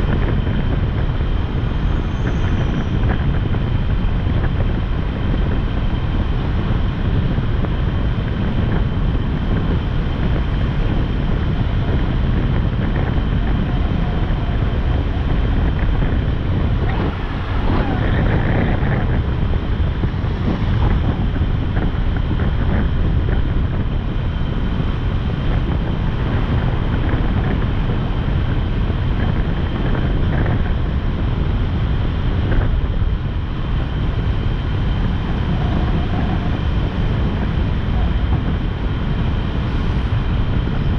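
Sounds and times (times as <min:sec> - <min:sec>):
road noise: 0:00.0 - 0:40.9
wind rushing over microphone: 0:00.0 - 0:40.9
motorcycle engine: 0:08.0 - 0:29.4.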